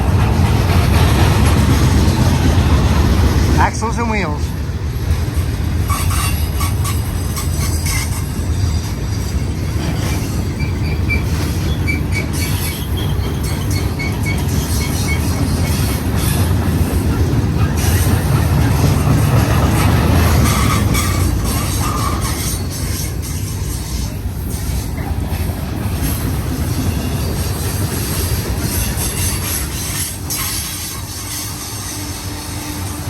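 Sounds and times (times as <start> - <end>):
steel wheels rumbling on rail: 0.0 - 33.0
high-pitched wheel squeals: 5.9 - 16.4.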